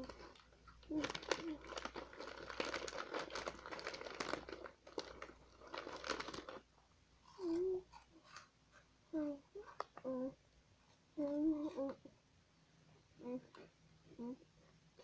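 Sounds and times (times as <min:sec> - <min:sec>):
plastic chip bag crinkling: 0:00.0 - 0:06.7.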